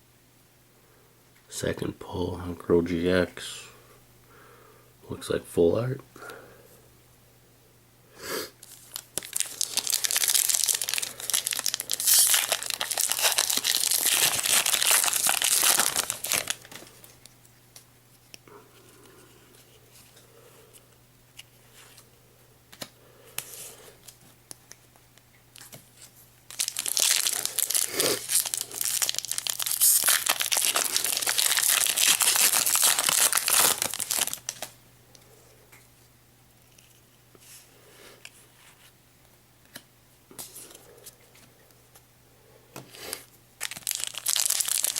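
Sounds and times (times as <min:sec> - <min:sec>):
foil wrappers crinkling and tearing: 0:08.6 - 0:17.3, 0:25.6 - 0:34.8, 0:43.1 - 0:44.9.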